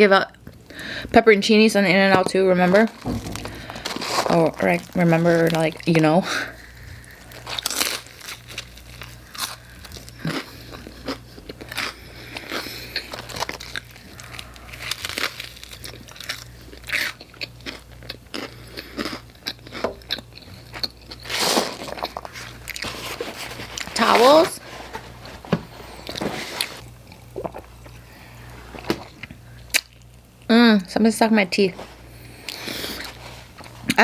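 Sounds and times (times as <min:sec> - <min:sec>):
person chewing crunchy food: 0:02.7 - 0:30.5, 0:32.0 - 0:34.0.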